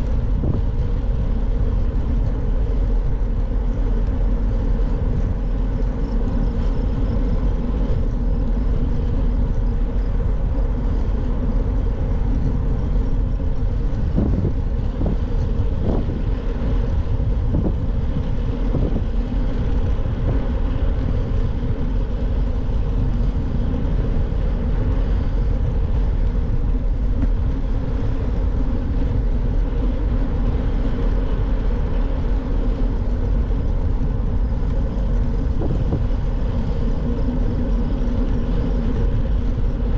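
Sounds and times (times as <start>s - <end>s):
bicycle road noise: 0.0s - 39.9s
wind on microphone: 0.0s - 39.9s.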